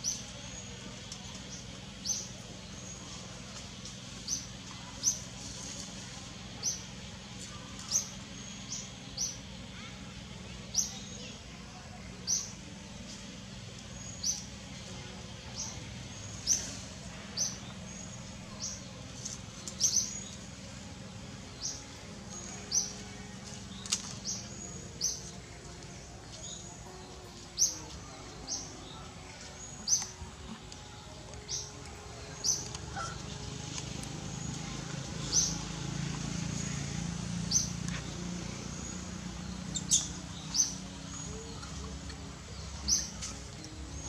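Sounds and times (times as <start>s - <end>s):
low background hum: 0.0s - 44.0s
small bird chirping: 39.6s - 41.8s.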